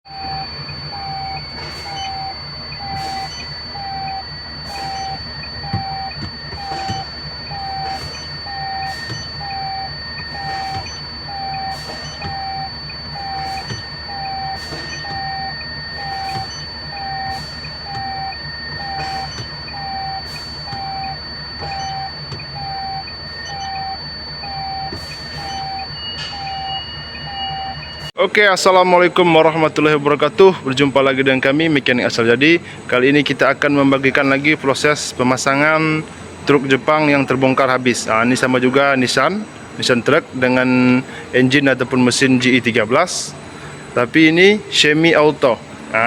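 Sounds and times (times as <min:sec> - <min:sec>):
low hum: 0:00.1 - 0:28.1
electronic warning beeps: 0:00.1 - 0:46.0.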